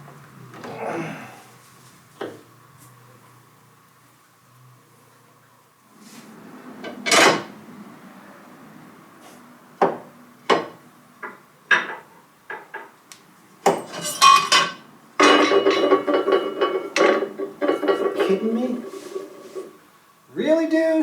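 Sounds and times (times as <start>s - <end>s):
metal tools clinking and knocking: 13.7s - 19.7s.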